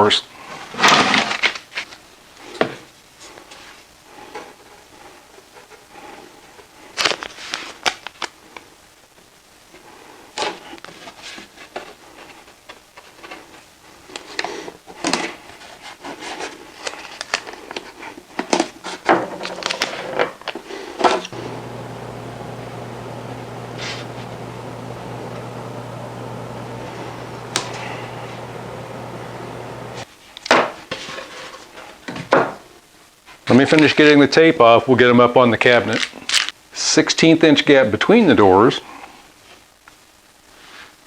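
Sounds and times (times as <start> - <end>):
low steady hum: 21.3 - 30.1.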